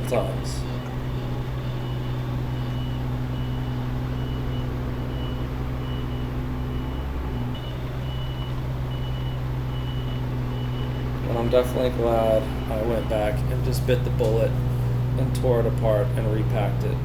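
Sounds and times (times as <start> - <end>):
excavator diesel engine running: 0.0 - 17.0
travel alarm beeping: 0.0 - 17.0.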